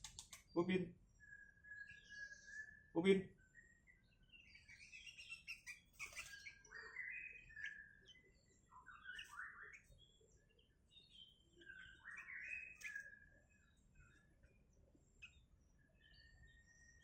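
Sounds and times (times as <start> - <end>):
sharp clicks: 0.0 - 0.5.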